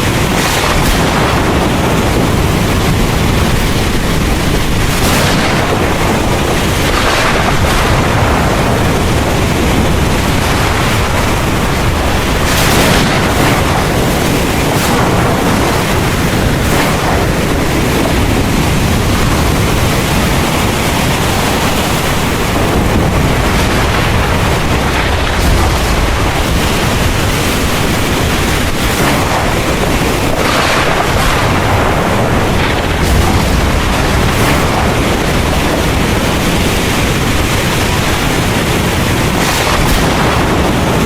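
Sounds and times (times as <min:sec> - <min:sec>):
heavy rain pouring: 0:00.0 - 0:41.0
thunder rumbling: 0:00.0 - 0:41.0
wind: 0:00.0 - 0:41.0.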